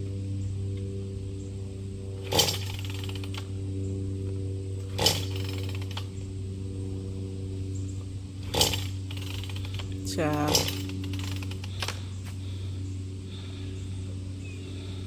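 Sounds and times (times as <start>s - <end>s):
chainsaw engine idling: 0.8s - 15.0s
chainsaw revving bursts: 2.2s - 3.6s, 4.8s - 6.3s, 8.2s - 12.6s.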